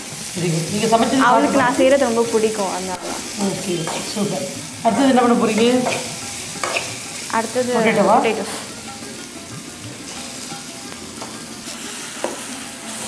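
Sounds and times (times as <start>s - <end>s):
vegetables sizzling in hot oil: 0.0s - 13.0s
person speaking: 0.4s - 2.8s, 7.4s - 8.6s
metal spoon scraping a pan: 5.1s - 7.3s.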